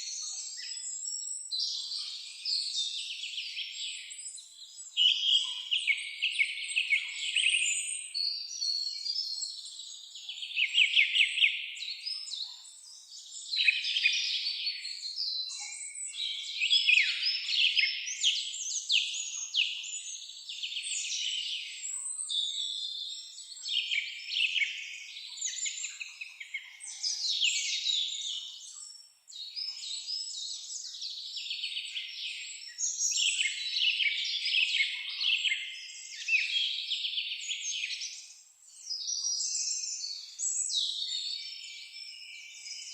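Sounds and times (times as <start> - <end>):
songbirds singing and calling: 0.0 - 42.9.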